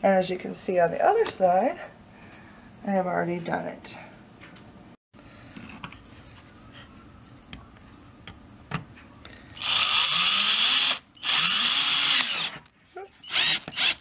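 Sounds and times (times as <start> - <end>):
cordless drill driving screw: 9.6 - 12.6, 13.2 - 14.0.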